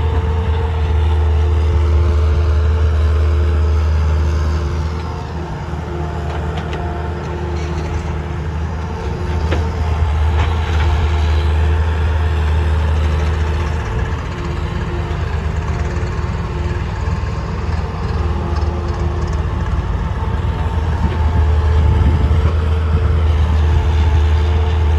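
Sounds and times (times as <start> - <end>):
heavy diesel engines running: 0.0 - 24.9.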